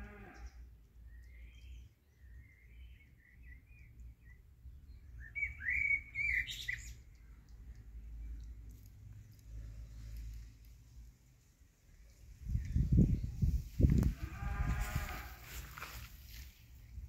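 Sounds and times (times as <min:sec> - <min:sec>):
small birds chirping: 0:00.0 - 0:14.4.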